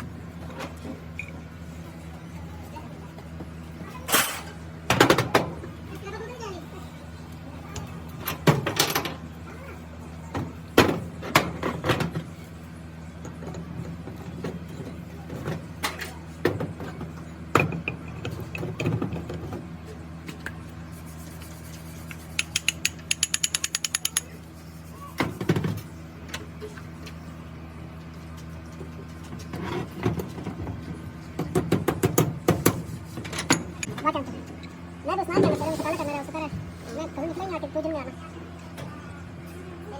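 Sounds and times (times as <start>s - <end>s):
even clicks: 22.4s - 24.3s.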